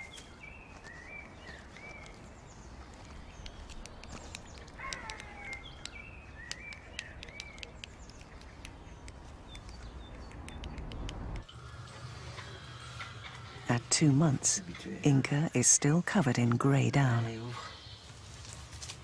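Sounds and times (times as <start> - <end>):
small birds chirping: 0.0 - 19.0
sharp clicks: 3.3 - 11.5
steady low rumble: 8.0 - 16.6.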